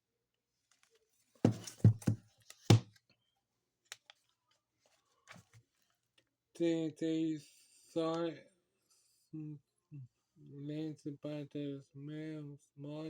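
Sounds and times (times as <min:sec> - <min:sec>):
book handling thumps and rustles: 0:01.4 - 0:03.0, 0:04.9 - 0:05.7.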